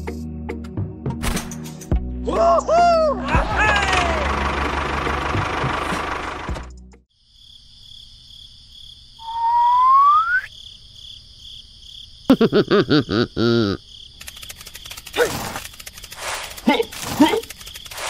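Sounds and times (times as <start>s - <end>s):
cricket-like chirping: 7.1s - 18.0s
rising whistle: 9.2s - 10.5s.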